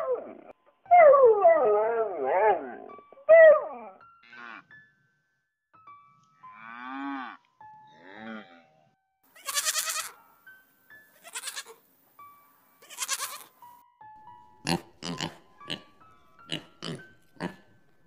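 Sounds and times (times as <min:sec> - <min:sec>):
soft background music: 0:00.0 - 0:18.0
calf mooing: 0:09.4 - 0:10.2, 0:11.2 - 0:11.7, 0:12.8 - 0:13.5
goat bleating: 0:09.4 - 0:10.2, 0:11.2 - 0:11.8, 0:12.8 - 0:13.5
piglets grunting: 0:14.6 - 0:17.8.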